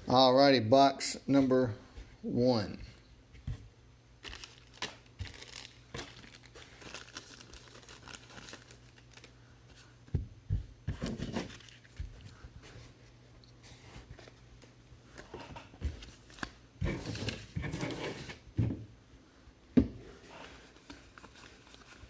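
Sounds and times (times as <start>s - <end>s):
plastic wrapping tearing and crinkling: 4.2s - 9.3s.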